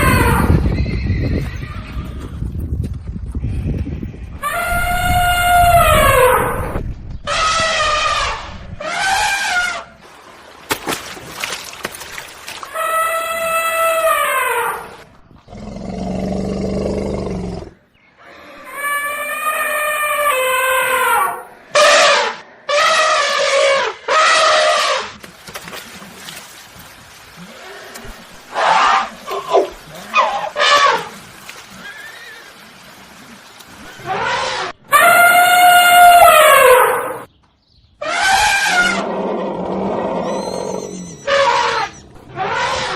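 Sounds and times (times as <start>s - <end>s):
background noise: 0.0s - 42.9s
horses neighing: 27.4s - 32.7s
horse whinnying: 38.0s - 42.9s.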